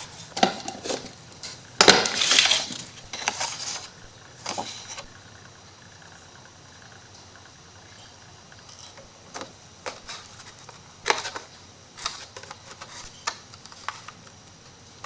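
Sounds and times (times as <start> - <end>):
hands tapping and rustling paper: 9.3 - 14.4.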